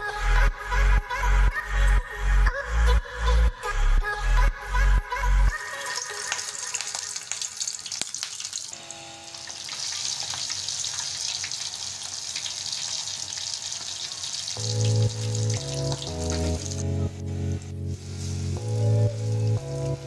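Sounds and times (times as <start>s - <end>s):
chicken deep-frying in oil: 6.0s - 16.9s, 18.0s - 20.0s
background music with a beat: 14.6s - 20.0s.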